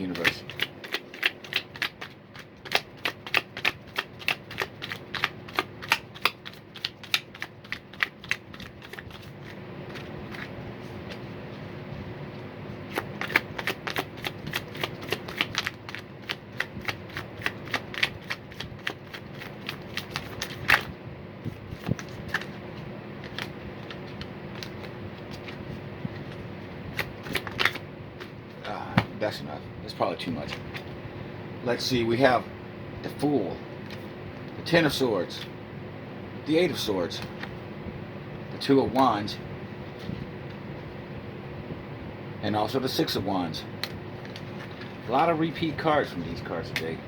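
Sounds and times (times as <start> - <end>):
cards being shuffled: 0.0 - 11.8, 12.8 - 20.9, 21.5 - 29.1, 43.8 - 47.0.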